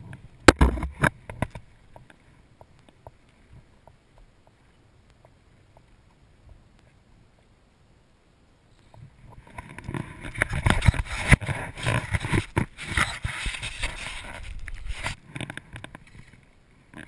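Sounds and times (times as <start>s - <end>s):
close rustling and scraping: 8.7s - 17.0s.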